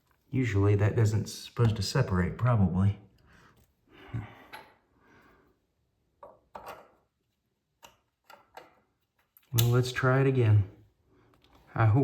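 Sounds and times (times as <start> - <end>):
small clicks and knocks: 6.2 - 7.1, 7.8 - 9.8.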